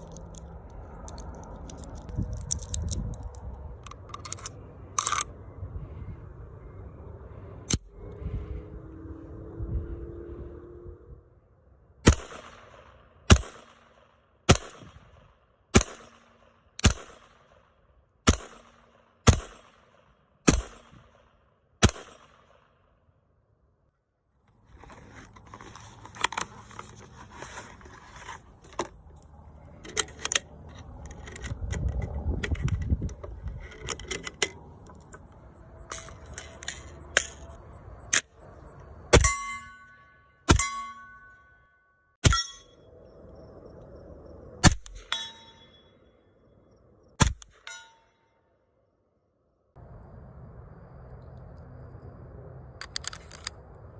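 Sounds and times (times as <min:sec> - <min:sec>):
scattered clicks: 0:28.7 - 0:38.9
metallic ring: 0:39.2 - 0:42.9, 0:45.0 - 0:46.2, 0:47.6 - 0:48.4.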